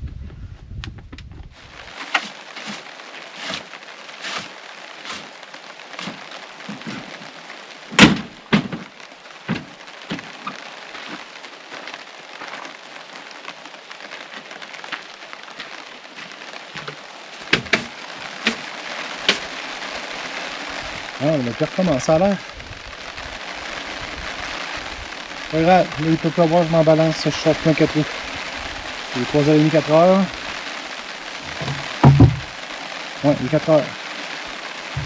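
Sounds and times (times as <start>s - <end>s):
rain pattering: 1.5s - 35.0s
sharp knock: 8.0s - 8.8s, 17.4s - 18.6s, 31.5s - 32.5s
louder drops striking: 31.4s - 32.6s.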